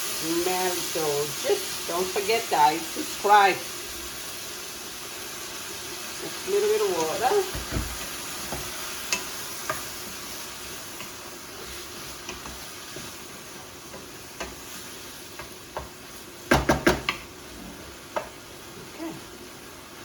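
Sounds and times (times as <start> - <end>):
food sizzling in a pan: 0.0 - 20.0
loud knocks against pan: 16.5 - 17.2.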